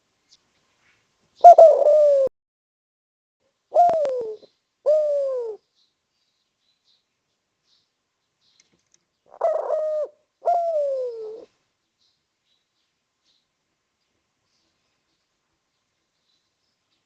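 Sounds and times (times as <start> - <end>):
dove cooing: 1.4 - 2.3, 3.7 - 5.6, 9.3 - 11.6.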